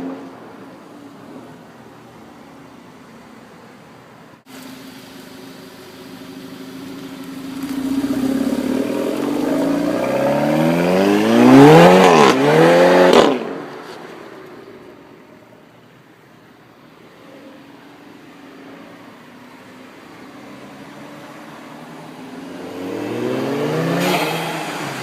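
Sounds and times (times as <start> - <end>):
car engine accelerating hard: 6.7 - 13.6, 22.5 - 25.0.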